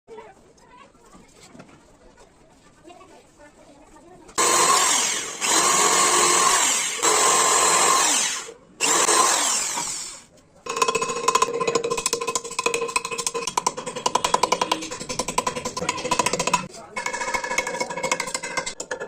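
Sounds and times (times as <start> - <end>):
power tool running loudly: 4.4 - 10.2.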